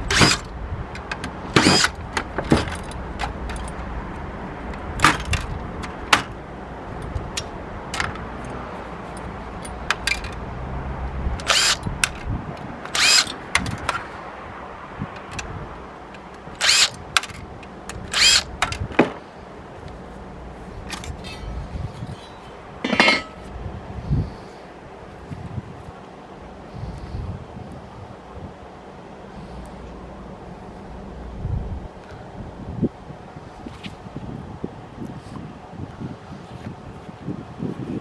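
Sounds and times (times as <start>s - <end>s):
clicks and clinks of parts: 0.1s - 3.8s, 7.0s - 10.4s, 11.4s - 14.1s, 15.1s - 15.5s, 16.1s - 19.2s, 20.8s - 23.5s.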